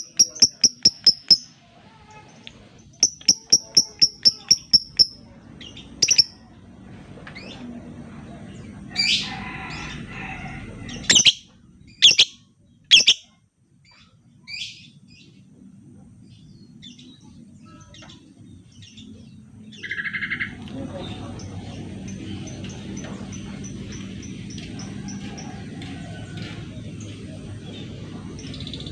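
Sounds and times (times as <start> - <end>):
lovebird squawking and chirping: 0.0 - 1.5, 3.0 - 5.2, 6.0 - 6.4, 11.0 - 13.3.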